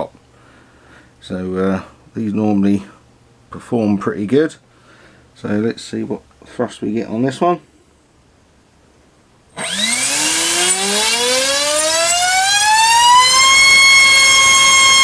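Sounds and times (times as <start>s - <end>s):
electric motor whine: 9.5s - 15.0s.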